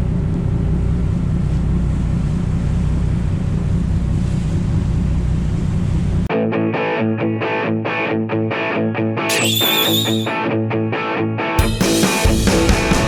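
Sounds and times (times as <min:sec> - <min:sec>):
ferry engine rumbling: 0:00.0 - 0:06.3
guitar music: 0:06.3 - 0:13.0.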